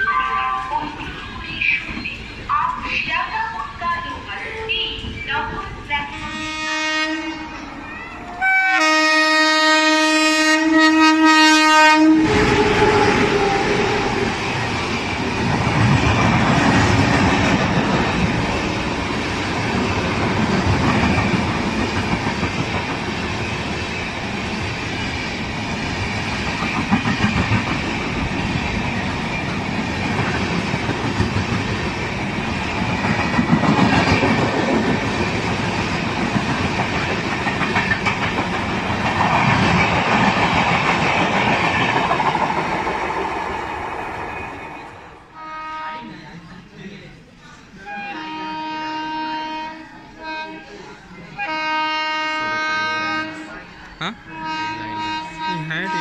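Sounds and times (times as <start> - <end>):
train wheels rushing on rail: 0.0 - 45.9
locomotive horn blast: 6.1 - 7.6, 8.4 - 14.2, 45.4 - 46.1, 47.9 - 50.7, 51.4 - 53.6, 54.3 - 56.0.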